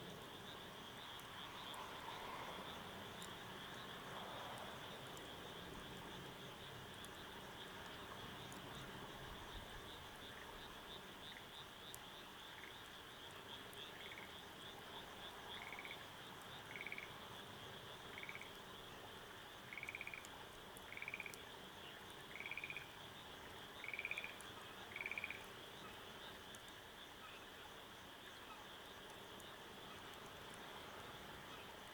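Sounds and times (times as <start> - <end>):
insects chirping: 0.0 - 31.9
frog calling in pulsed trills: 23.8 - 25.4.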